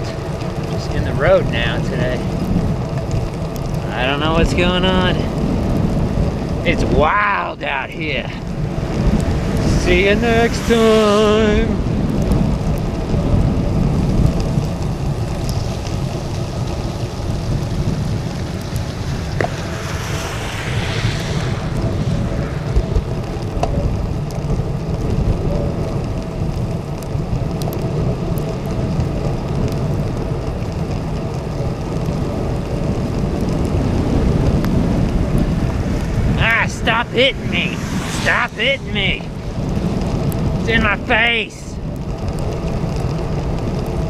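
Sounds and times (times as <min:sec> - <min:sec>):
wind rushing over microphone: 0:00.0 - 0:44.0
wet tyres hissing: 0:07.9 - 0:28.2, 0:29.8 - 0:41.1.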